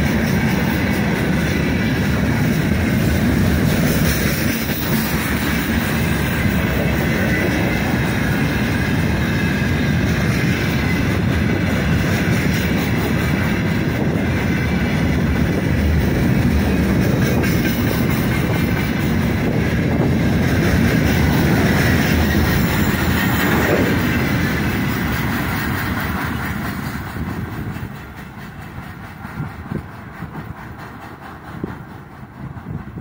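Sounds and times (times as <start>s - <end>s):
freight train wheels rumbling on rails: 0.0s - 33.0s.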